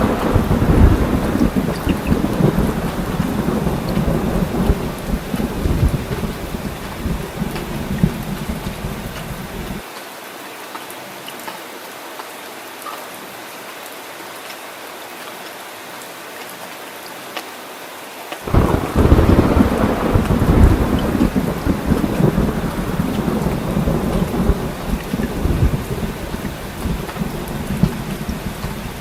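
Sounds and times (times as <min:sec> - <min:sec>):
scattered drips: 0:00.0 - 0:09.8, 0:18.5 - 0:29.0
thunder rumbling: 0:00.0 - 0:09.8, 0:18.5 - 0:29.0
heavy rain falling: 0:00.0 - 0:29.0.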